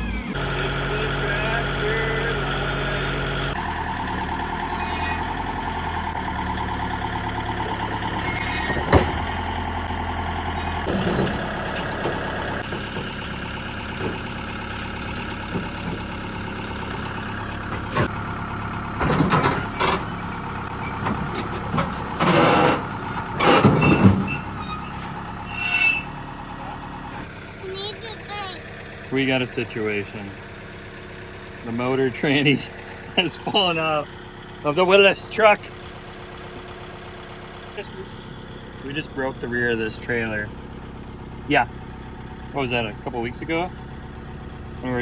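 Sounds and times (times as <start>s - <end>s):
vehicle engine running: 0.0s - 45.0s
metal clanks and scraping: 7.3s - 27.2s.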